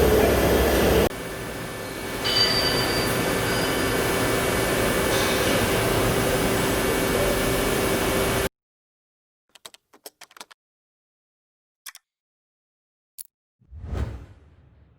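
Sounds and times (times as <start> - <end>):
high machine whine: 0.0 - 8.5.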